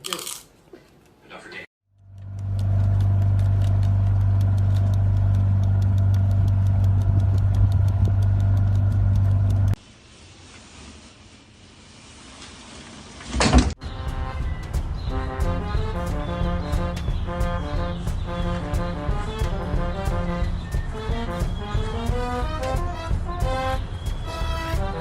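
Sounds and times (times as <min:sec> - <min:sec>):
low motor hum: 0:01.9 - 0:09.8, 0:14.0 - 0:25.0
rapid even ticking: 0:02.0 - 0:09.8.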